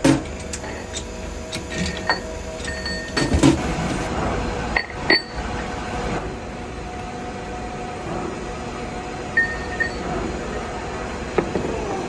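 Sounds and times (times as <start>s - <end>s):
metal parts knocking and clinking: 0.0s - 4.1s
steady machine hum: 0.0s - 12.0s.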